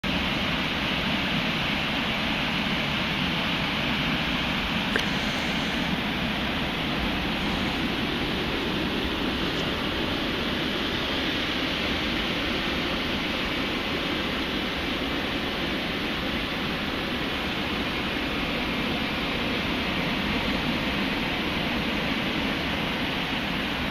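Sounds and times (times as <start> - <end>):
ocean surf rushing: 0.0 - 23.9
brief click: 4.9 - 5.1.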